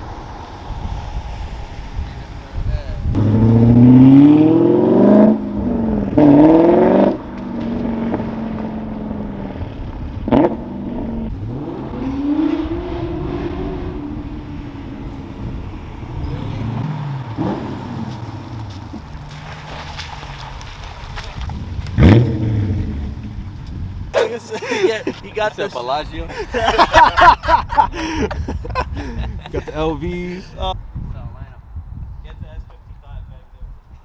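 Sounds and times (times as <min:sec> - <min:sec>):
car engine accelerating hard: 0:03.0 - 0:19.1, 0:21.5 - 0:23.5.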